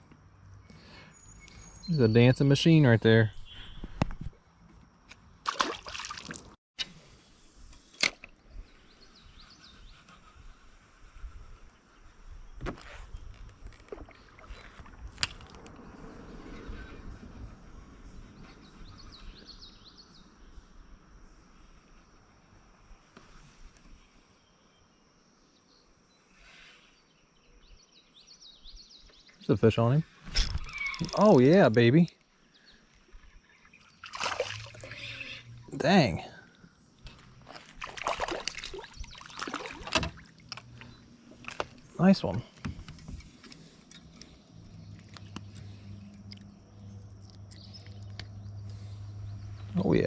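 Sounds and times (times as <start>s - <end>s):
water sloshing around kayak: 5.5s - 6.6s, 13.6s - 15.7s, 33.2s - 35.4s, 37.1s - 41.9s.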